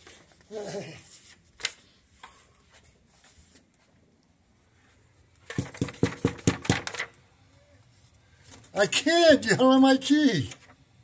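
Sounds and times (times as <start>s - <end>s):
rapid knocking on a door: 5.5s - 6.8s.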